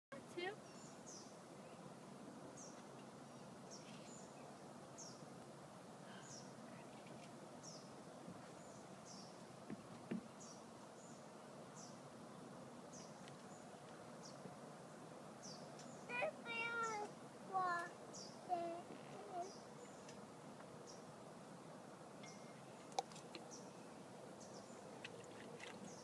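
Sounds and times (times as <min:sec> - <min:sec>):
small bird chirping: 0:00.4 - 0:01.9, 0:06.2 - 0:09.4, 0:15.4 - 0:20.2
faint knocks: 0:09.6 - 0:10.3.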